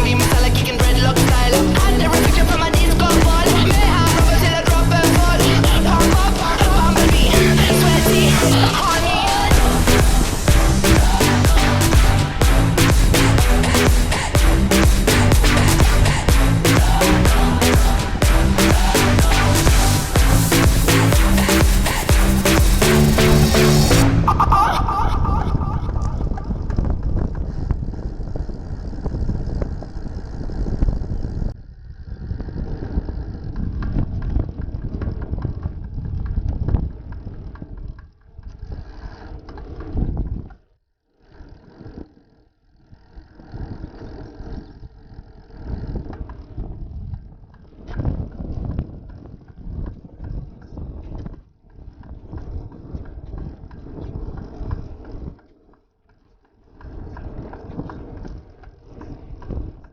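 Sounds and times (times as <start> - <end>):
road rumble: 0.0 - 28.2
wind buffeting microphone: 0.0 - 40.6, 43.0 - 55.4.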